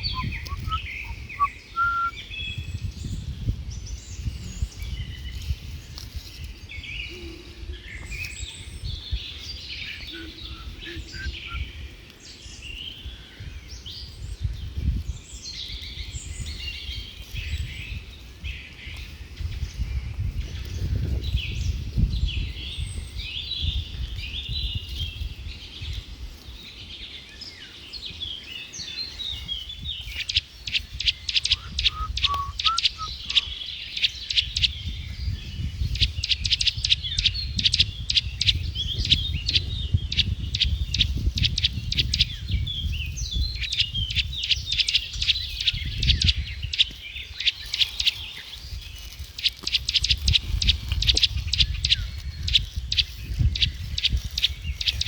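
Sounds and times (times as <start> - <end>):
lower bird calls: 0.0 - 2.4, 6.8 - 11.9, 27.6 - 55.0
small birds chirping: 0.0 - 55.0.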